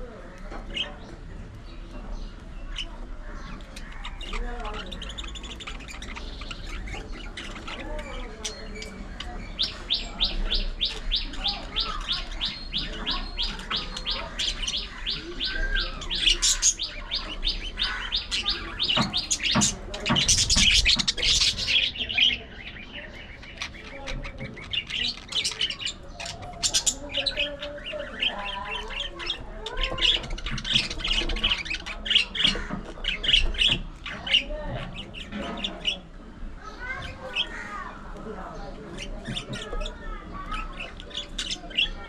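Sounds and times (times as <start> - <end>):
budgerigars chattering: 0.5 - 42.0
rapid repeated bird chirps: 0.6 - 36.2, 38.8 - 42.0
harsh bird squawks: 9.6 - 19.7.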